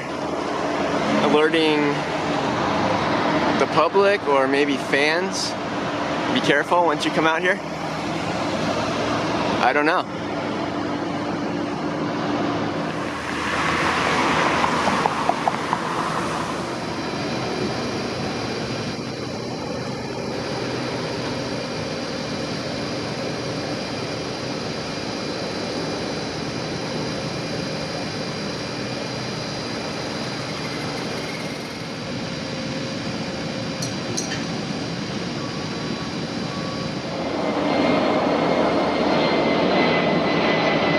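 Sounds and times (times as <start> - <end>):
outdoor traffic noise: 0.0 - 40.9
vehicle passing: 13.0 - 17.1.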